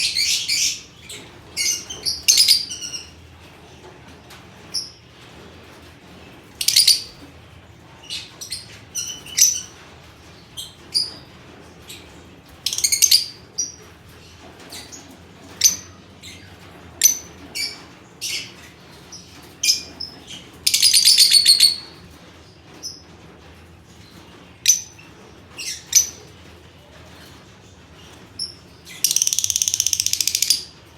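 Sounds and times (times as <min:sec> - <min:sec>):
rapid bird chattering: 0:29.0 - 0:30.8.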